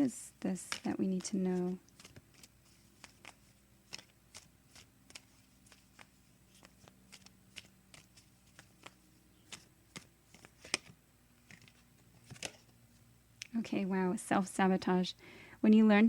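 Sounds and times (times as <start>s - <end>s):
cards being shuffled: 0.4s - 13.5s.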